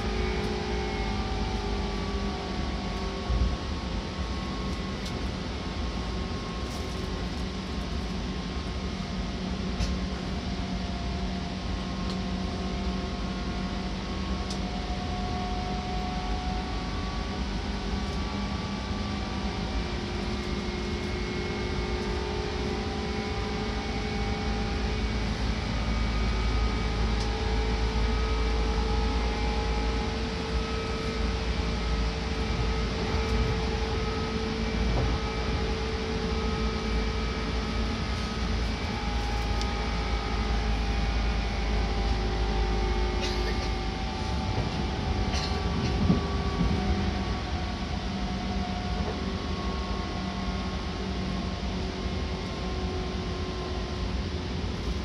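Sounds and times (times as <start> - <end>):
train rumble inside car: 0.0 - 55.0
motor and gear whines: 12.0 - 55.0.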